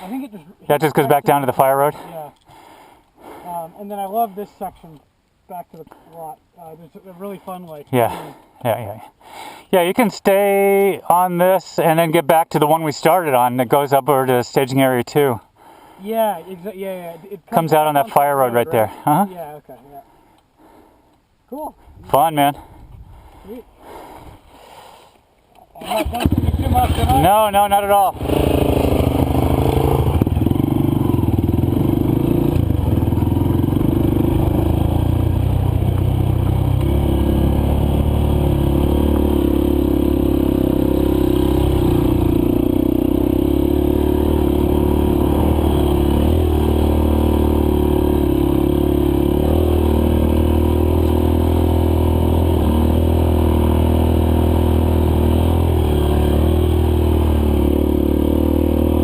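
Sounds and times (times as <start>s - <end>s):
dirt bike engine revving: 25.8s - 59.0s.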